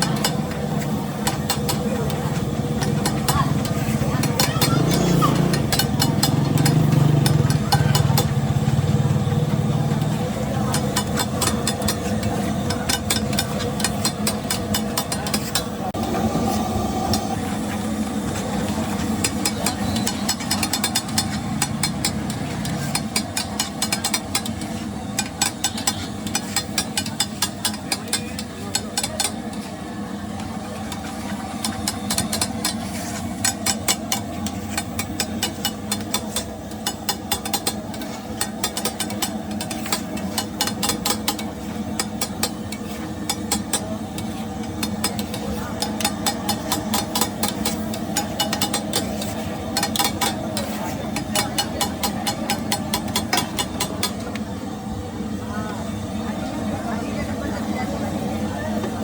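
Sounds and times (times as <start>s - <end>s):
engine and traffic hum: 0.0s - 55.3s
spatula clanking on griddle: 2.8s - 8.4s, 18.9s - 29.7s, 30.4s - 54.4s.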